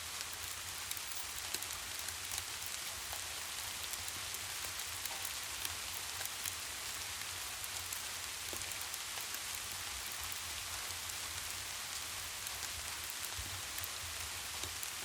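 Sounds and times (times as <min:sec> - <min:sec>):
steady rain falling: 0:00.0 - 0:15.0
raindrops ticking: 0:00.1 - 0:15.0.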